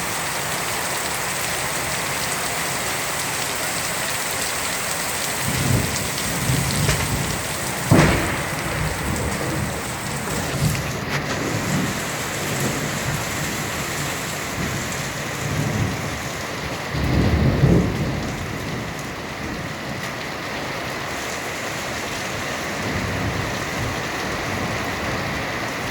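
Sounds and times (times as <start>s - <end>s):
heavy rain pouring: 0.0s - 25.9s
thunder rumbling: 4.8s - 20.0s.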